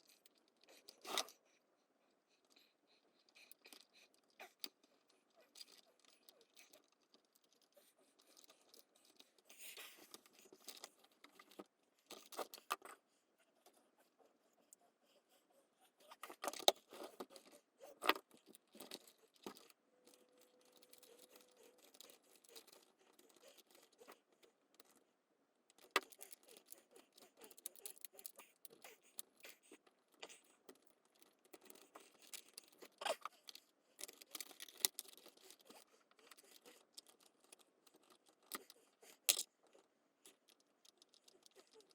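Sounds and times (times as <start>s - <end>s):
plastic parts clicking and rattling: 2.4s - 13.0s, 16.1s - 25.0s, 25.6s - 41.9s.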